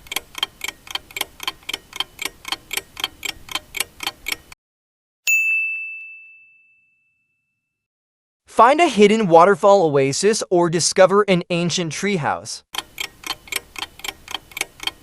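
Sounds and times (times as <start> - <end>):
clock ticking: 0.0 - 4.6, 12.8 - 15.0
bell ding: 5.3 - 7.8.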